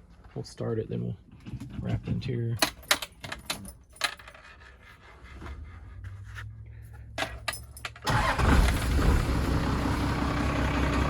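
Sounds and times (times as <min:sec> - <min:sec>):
diesel engine starting and running: 0:07.9 - 0:11.0.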